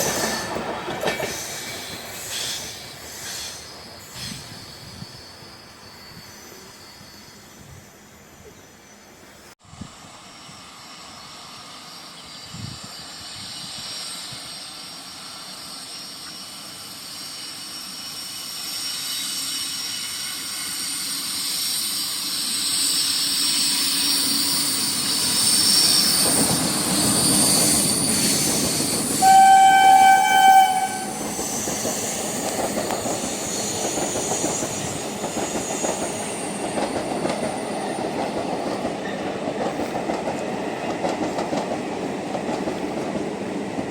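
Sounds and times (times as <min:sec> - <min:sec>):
train wheels clattering on rails: 0:00.0 - 0:05.2, 0:22.6 - 0:43.9
diesel train approaching: 0:00.0 - 0:43.9
locomotive horn: 0:29.2 - 0:31.4.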